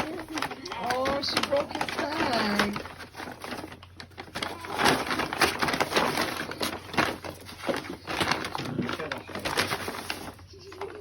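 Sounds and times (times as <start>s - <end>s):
bag crinkling: 0.0s - 11.0s.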